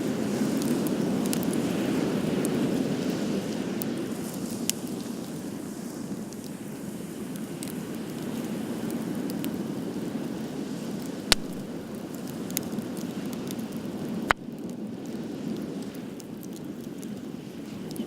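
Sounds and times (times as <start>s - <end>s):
wood fire crackling: 0.0s - 18.0s
loud sharp pops: 11.3s - 11.9s.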